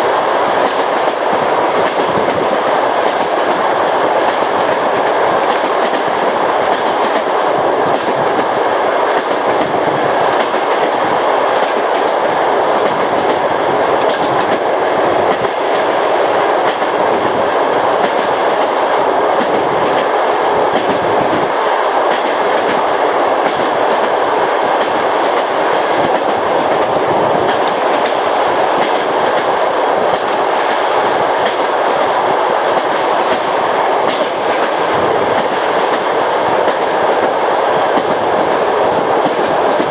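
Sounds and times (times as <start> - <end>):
clickety-clack over rail joints: 0.0 - 39.9
train wheels rumbling: 0.0 - 39.9.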